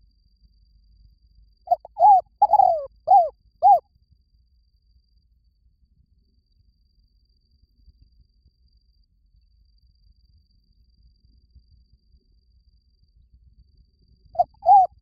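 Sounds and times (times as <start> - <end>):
dove cooing: 1.7 - 3.8, 14.4 - 14.9.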